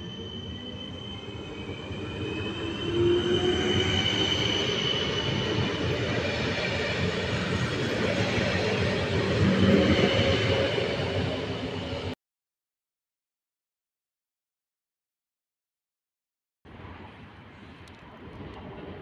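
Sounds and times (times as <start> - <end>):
high wheel squeal: 0.0 - 5.8
train wheel rumble on rails: 16.8 - 19.0.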